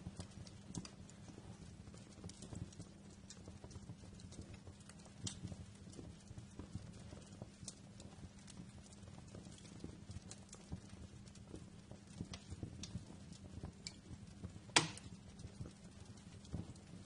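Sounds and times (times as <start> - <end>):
wood fire crackling: 0.0 - 17.0
loud fire pop: 14.7 - 15.2.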